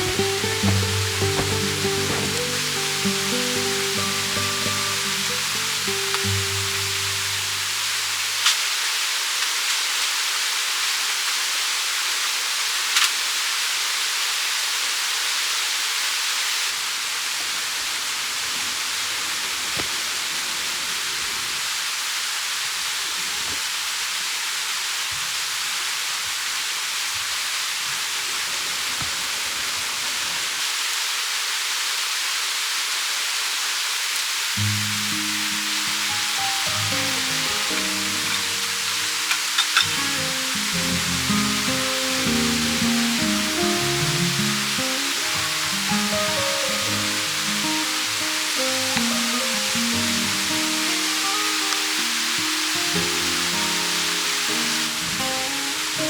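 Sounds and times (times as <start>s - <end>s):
sharp pops: 0.0s - 7.5s
fish sizzling on a grill: 0.0s - 56.0s.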